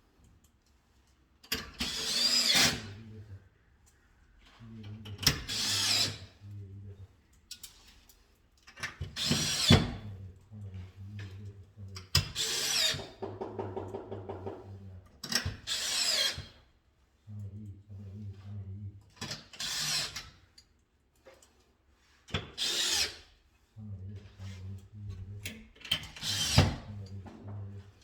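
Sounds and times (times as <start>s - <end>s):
cordless drill motor bursts: 22.6s - 23.1s.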